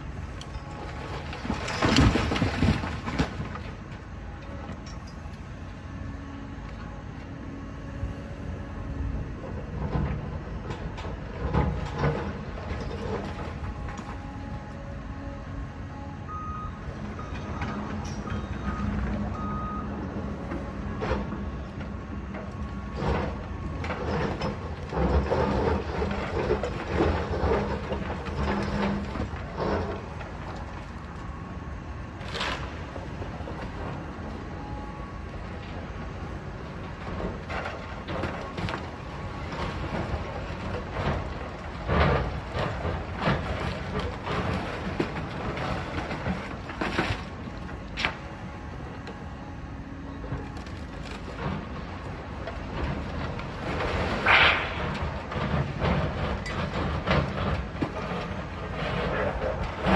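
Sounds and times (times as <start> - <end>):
diesel machine running: 0.0 - 59.9
sharp clack: 54.2 - 55.0.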